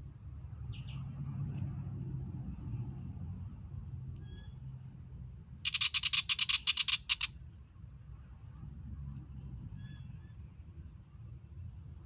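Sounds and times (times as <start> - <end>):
bird chattering rattle: 5.6 - 7.3
faint bird chirps: 5.7 - 7.7.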